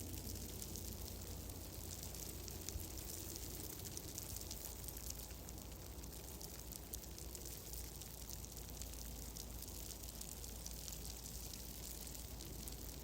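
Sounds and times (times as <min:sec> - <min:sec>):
fireplace fire crackling: 0:00.0 - 0:13.0.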